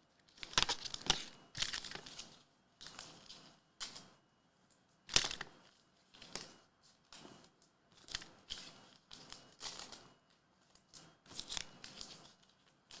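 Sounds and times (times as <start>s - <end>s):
card packaging crinkling: 5.1s - 5.4s.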